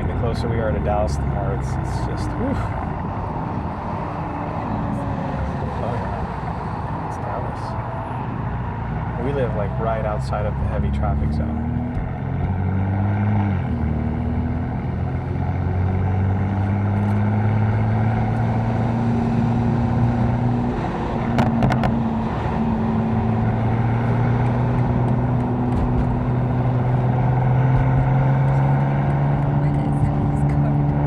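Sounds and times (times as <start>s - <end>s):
car engine droning: 0.0s - 31.0s.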